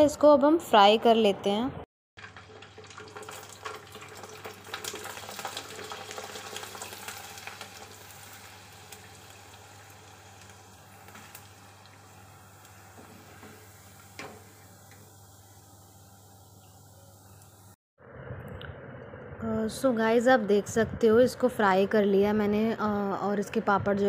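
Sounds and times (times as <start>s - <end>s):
food sizzling in hot oil: 2.2s - 17.8s.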